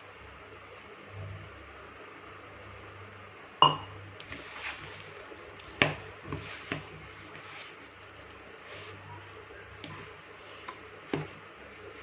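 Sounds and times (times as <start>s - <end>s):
dishes clinking: 3.6s - 3.9s
dough mixed in a bowl: 3.6s - 12.0s.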